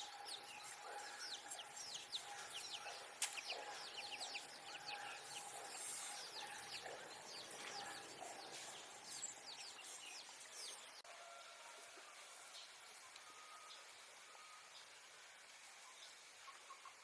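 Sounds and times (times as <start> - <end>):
small birds chirping: 0.0 - 11.0
faint outdoor background noise: 0.0 - 17.0.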